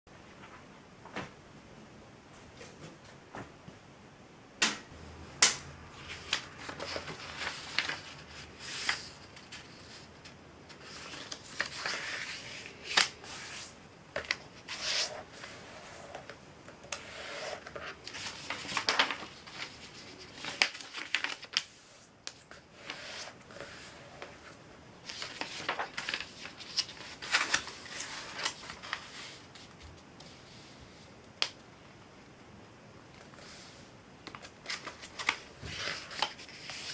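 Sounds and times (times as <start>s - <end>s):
paper rustling and sliding: 6.0s - 31.2s, 33.2s - 36.9s.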